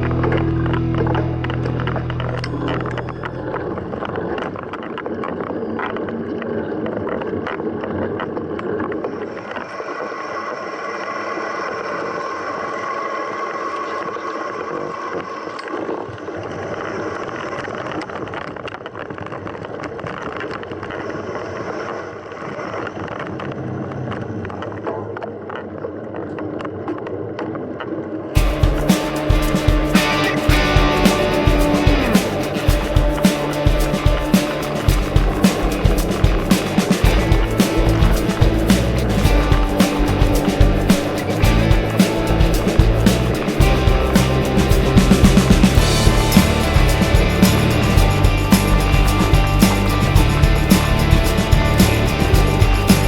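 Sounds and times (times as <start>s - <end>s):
bike rattling and knocking: 28.4s - 53.0s.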